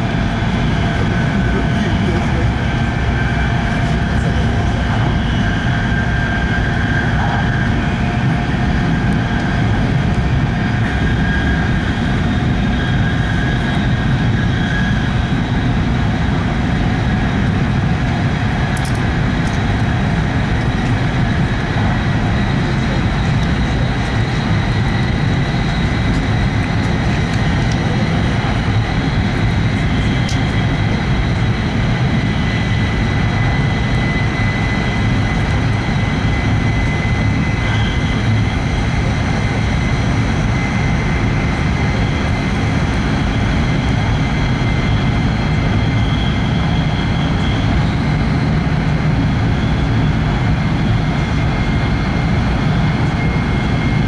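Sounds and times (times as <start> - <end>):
train interior low rumble: 0.0 - 13.9, 15.4 - 44.5.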